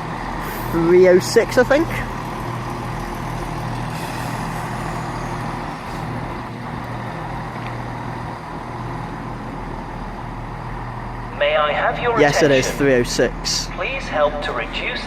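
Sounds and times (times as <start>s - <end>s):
hiss of fans and compressors: 0.0s - 11.2s
train engine idling hum: 0.0s - 15.0s.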